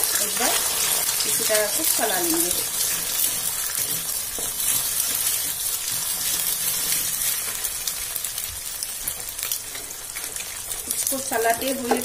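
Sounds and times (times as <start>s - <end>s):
eggs sizzling in hot oil: 0.0s - 12.0s
wooden spatula scraping a pan: 0.1s - 7.9s.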